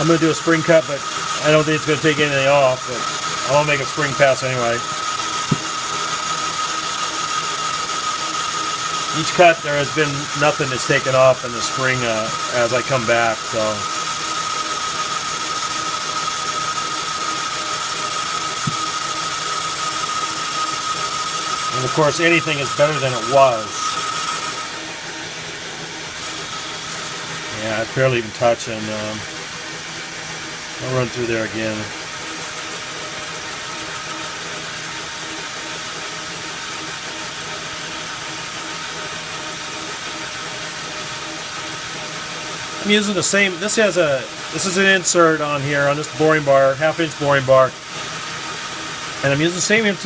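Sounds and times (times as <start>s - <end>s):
metal lathe running with whine: 0.0s - 50.0s.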